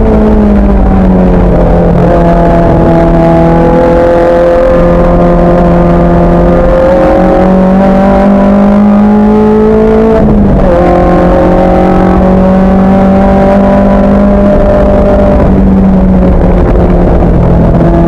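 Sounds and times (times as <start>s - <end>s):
racing car engine accelerating: 0.0s - 18.0s.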